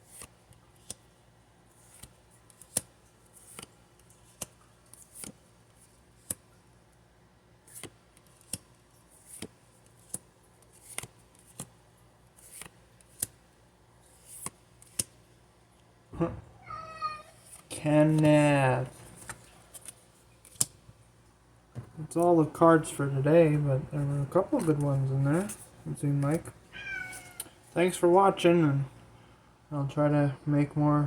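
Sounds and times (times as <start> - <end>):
trading cards swishing and clicking: 1.7 - 5.4, 7.7 - 15.2, 17.4 - 20.8, 24.0 - 27.5.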